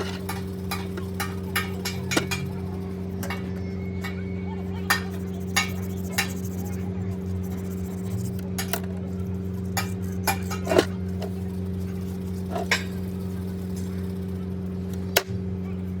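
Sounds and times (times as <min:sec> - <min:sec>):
metal tools clinking: 0:00.0 - 0:06.5
low mechanical hum: 0:00.0 - 0:16.0.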